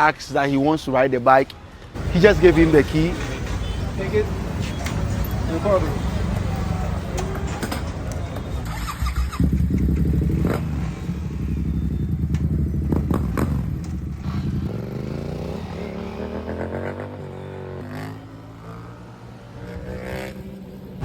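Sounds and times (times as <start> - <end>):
motorcycle engine accelerating: 8.6 - 21.0.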